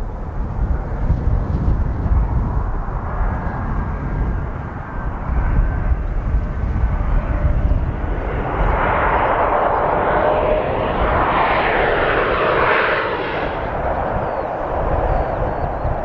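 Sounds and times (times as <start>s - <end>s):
jet airliner engine noise: 0.0s - 16.0s
steady low rumble: 0.0s - 16.0s.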